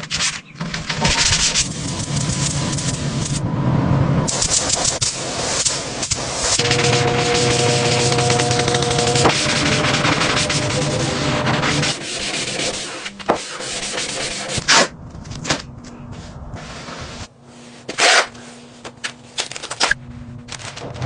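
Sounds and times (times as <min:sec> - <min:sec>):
sanding strokes: 0:04.3 - 0:14.7.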